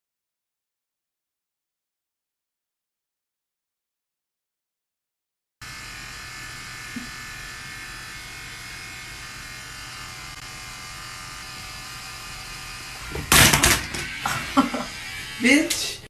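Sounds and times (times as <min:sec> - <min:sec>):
electric motor hum: 0:05.6 - 0:16.0.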